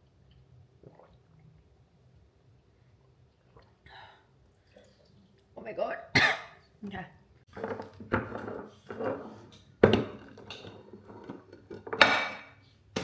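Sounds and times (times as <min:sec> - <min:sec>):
objects knocking and clattering: 0:07.5 - 0:13.0.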